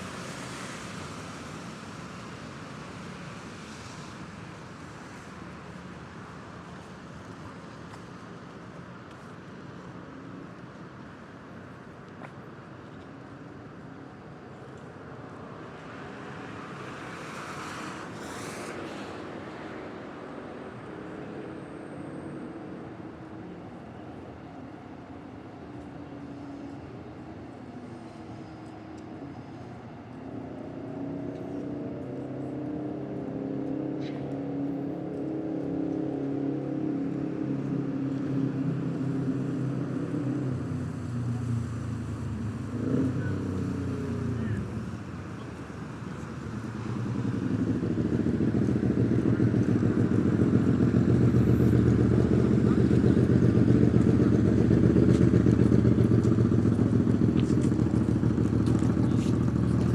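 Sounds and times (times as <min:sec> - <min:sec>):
passing vehicle rumble: 0:34.2 - 0:59.9.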